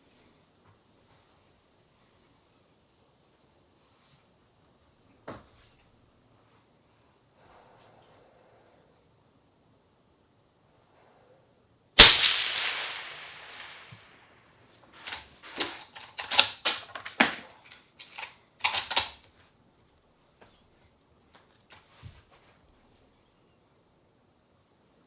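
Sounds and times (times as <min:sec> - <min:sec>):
rifle handling clicks: 0:12.0 - 0:14.0, 0:15.0 - 0:19.3
rifle shot with echo: 0:12.0 - 0:14.1.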